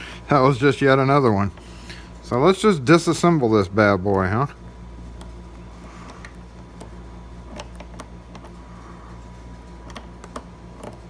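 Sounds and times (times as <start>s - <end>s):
lock parts clicking: 6.1s - 8.6s, 9.8s - 11.0s.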